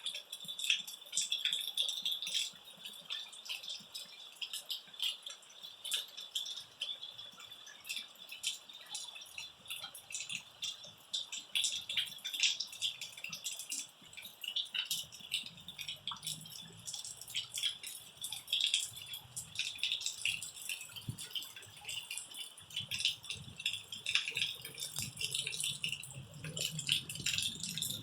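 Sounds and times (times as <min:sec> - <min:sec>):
rain pattering: 0:00.0 - 0:28.0.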